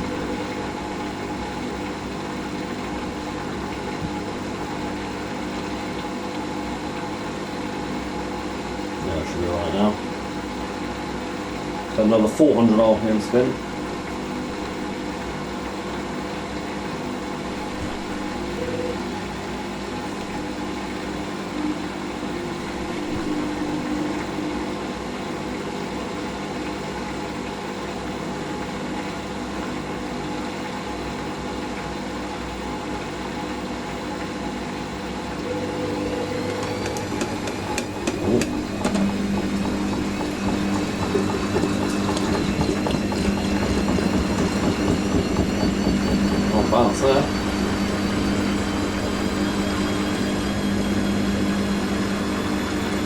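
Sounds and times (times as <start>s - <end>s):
washing machine drum turning: 16.7s - 26.0s, 35.4s - 53.0s
rising spin whine: 35.4s - 53.0s.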